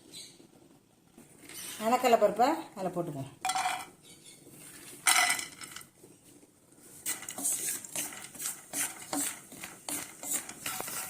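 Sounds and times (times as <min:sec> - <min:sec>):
spoon scraping a pan: 0:06.8 - 0:11.0.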